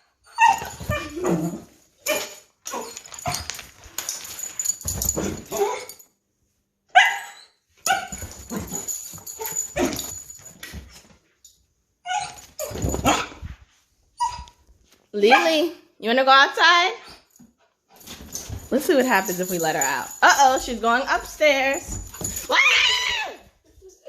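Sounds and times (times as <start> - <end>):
dog barking and yipping: 0.2 - 1.4, 2.0 - 3.5, 6.9 - 10.2, 12.0 - 13.4, 15.2 - 15.7.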